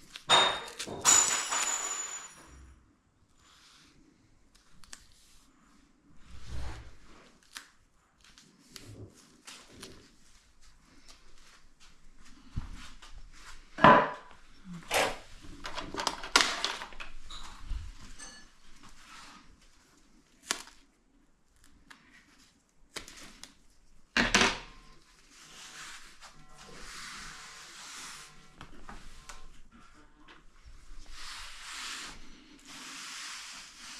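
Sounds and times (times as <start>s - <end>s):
knocks and clatters of parts: 0.2s - 2.7s, 14.9s - 17.6s.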